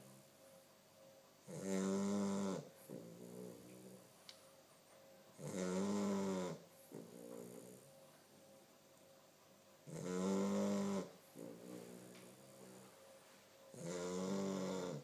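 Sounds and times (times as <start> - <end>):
puppy snoring: 0.0 - 0.4, 1.4 - 4.2, 5.4 - 8.1, 9.8 - 13.1, 13.7 - 15.0.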